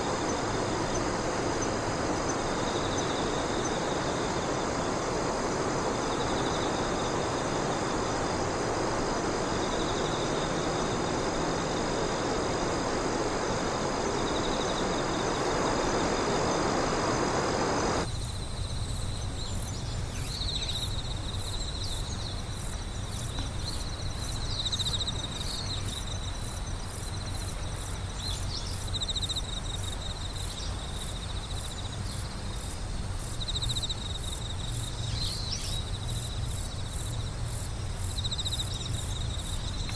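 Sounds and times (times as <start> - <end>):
steady rushing noise: 0.0 - 18.1
insects chirping: 0.0 - 39.9.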